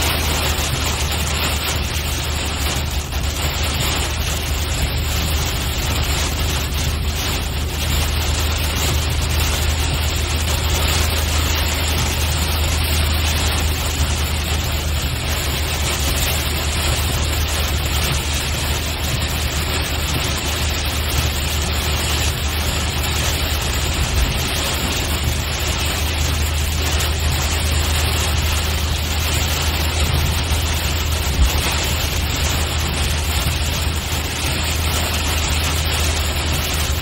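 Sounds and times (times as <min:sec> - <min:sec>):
car interior drone: 0:00.0 - 0:37.0
rain and tyres on wet road: 0:00.0 - 0:37.0.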